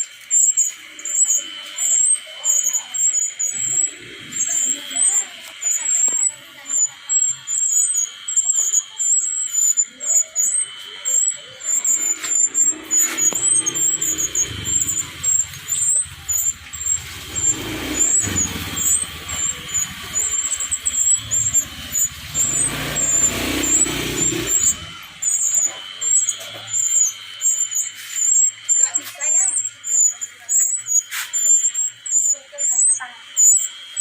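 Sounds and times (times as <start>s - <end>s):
small bird squeaky chirps: 0.0s - 34.0s
vehicle passing rumble: 11.2s - 28.4s.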